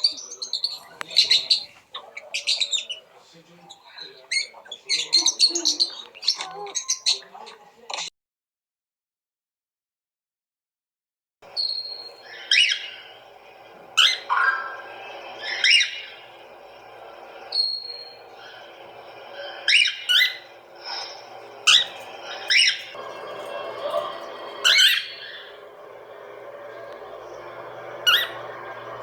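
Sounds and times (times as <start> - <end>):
bird giving downward-sweeping calls: 11.5 - 29.0.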